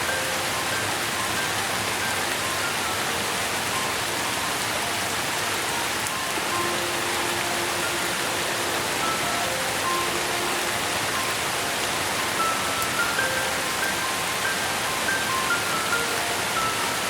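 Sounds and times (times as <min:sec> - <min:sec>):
steady rain hiss: 0:00.0 - 0:17.0.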